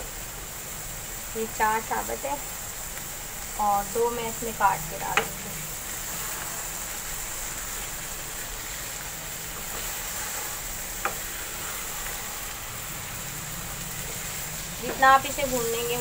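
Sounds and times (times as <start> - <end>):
vegetables sizzling in wok: 0.0 - 16.0
wooden spatula stirring: 7.6 - 12.5.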